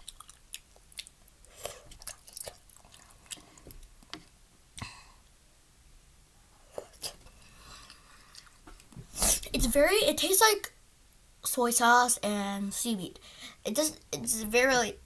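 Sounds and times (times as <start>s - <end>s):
chewing noodles: 0.0s - 4.1s, 6.7s - 8.9s.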